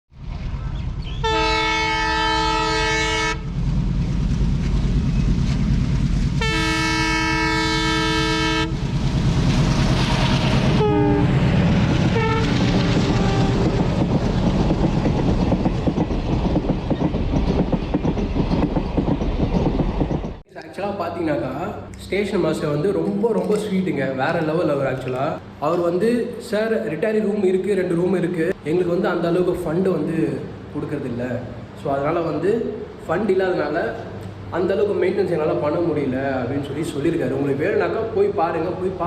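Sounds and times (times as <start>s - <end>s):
train rumbling on track: 0.1s - 20.5s
train horn blasts: 1.2s - 3.6s, 6.4s - 8.8s, 10.6s - 11.4s, 12.0s - 13.9s.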